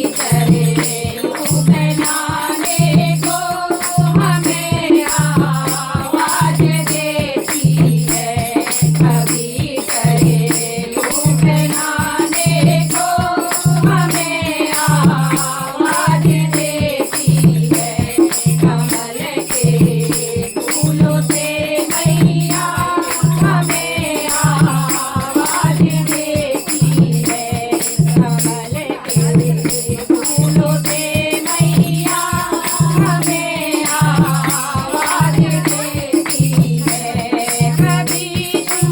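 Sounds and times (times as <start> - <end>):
jingling rattling percussion: 0.0 - 38.9
steady low drum beat: 0.0 - 38.9.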